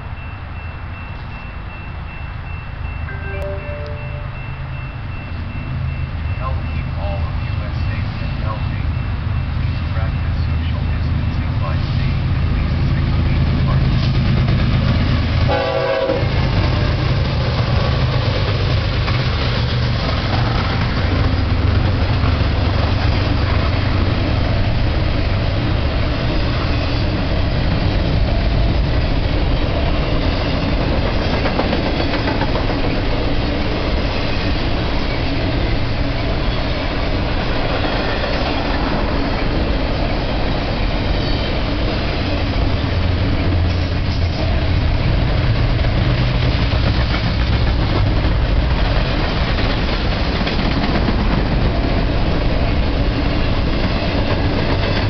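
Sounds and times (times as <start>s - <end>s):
diesel locomotives passing: 0.0s - 55.0s
freight train rumble and wheel clatter: 0.0s - 55.0s
short train horn: 3.1s - 4.5s, 15.5s - 17.0s.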